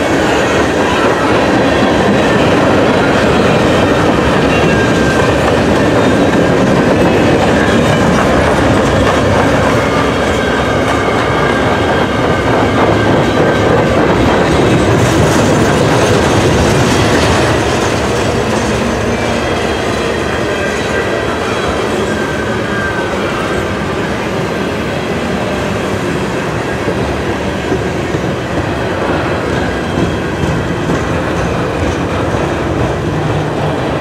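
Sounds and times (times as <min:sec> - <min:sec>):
train wheels clacking on rails: 0:00.0 - 0:34.0.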